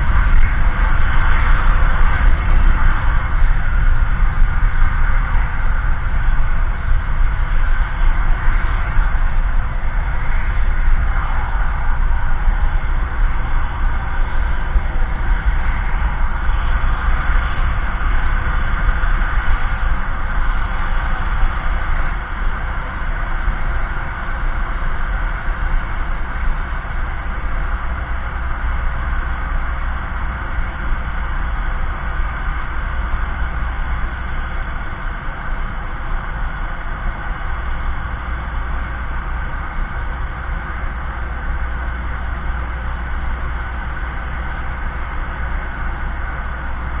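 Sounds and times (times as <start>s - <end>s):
rocket engine rumble: 0.0s - 47.0s.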